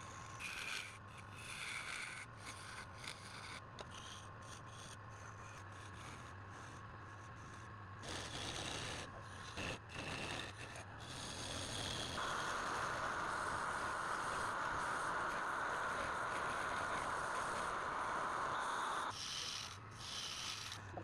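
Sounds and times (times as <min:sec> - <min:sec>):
tool scraping against wood: 0:00.4 - 0:06.8, 0:08.0 - 0:21.0
steady low hum: 0:02.1 - 0:21.0.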